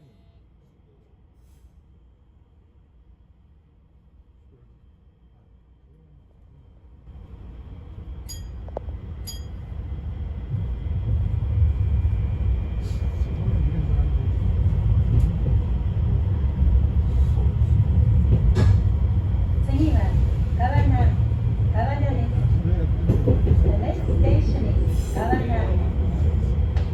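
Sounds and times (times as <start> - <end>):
train wheels and motors rumbling: 6.2 - 26.9.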